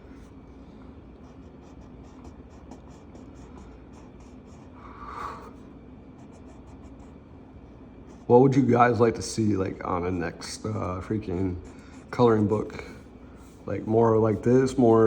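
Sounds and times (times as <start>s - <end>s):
coloring pencil scratching on paper: 1.2s - 5.4s, 6.2s - 7.2s, 10.8s - 13.0s.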